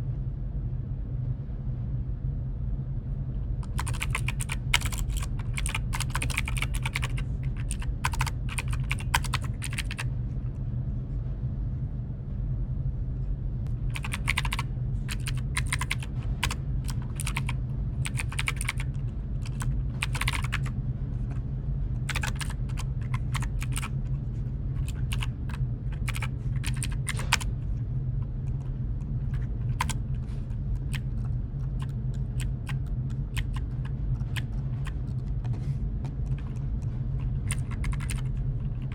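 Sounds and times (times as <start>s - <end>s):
steady low hum: 0.0s - 38.9s
typing on computer keyboard: 3.6s - 10.1s, 13.9s - 20.7s, 22.0s - 24.0s, 24.8s - 27.5s, 28.4s - 35.3s, 36.2s - 38.9s.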